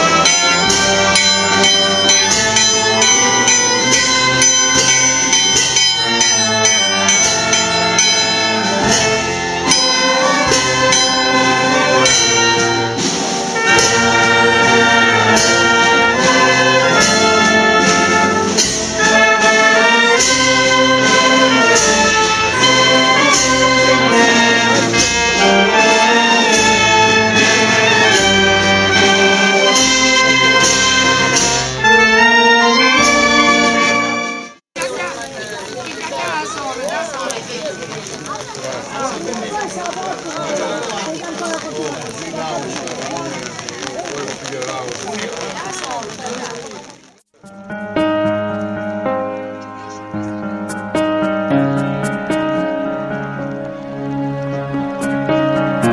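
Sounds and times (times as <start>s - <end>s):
brass band playing: 0.0s - 35.1s, 50.5s - 55.9s.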